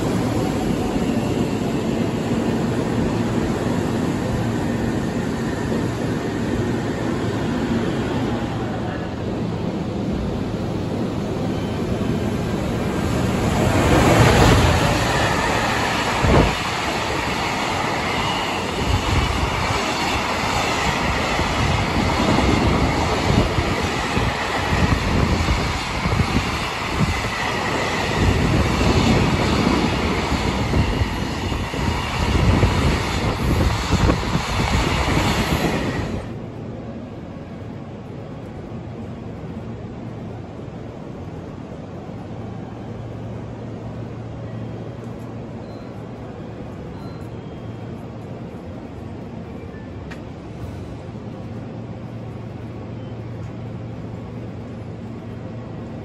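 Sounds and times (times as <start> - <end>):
electric locomotive passing: 0.0 - 56.0
faint wheel squeal: 46.9 - 47.8.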